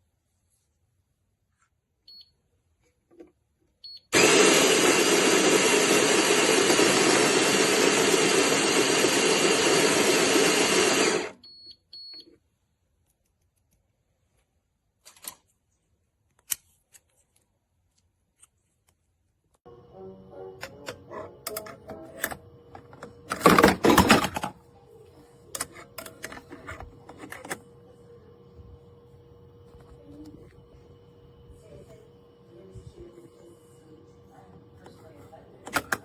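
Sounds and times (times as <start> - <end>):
coffee grinder running: 4.2 - 11.3, 20.6 - 36.0.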